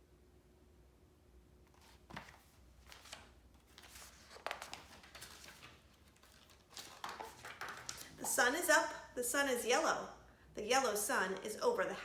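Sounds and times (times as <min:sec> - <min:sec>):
paper crinkles and taps: 0:01.7 - 0:08.3
paper pages turning: 0:01.7 - 0:08.6.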